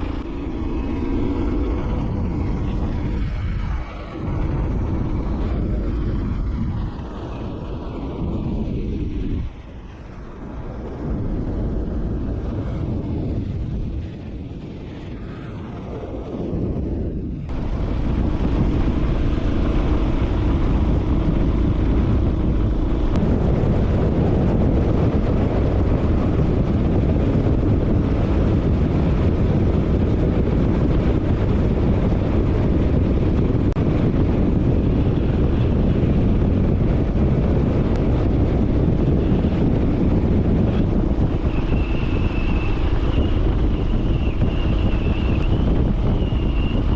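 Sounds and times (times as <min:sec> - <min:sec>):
wind rushing over microphone: 0:00.0 - 0:46.9
motorcycle engine running: 0:15.9 - 0:46.9.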